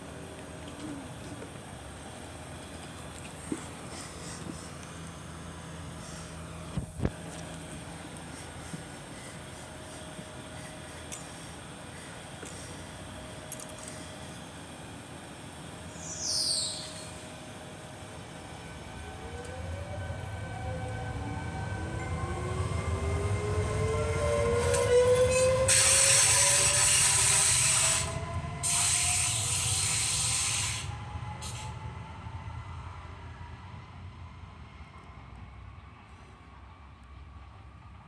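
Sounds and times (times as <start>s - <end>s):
train rumbling past: 0.0s - 38.0s.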